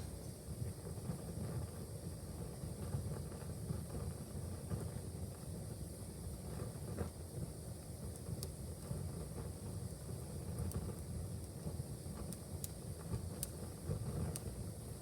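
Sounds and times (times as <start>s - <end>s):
wood fire crackling: 9.8s - 14.6s.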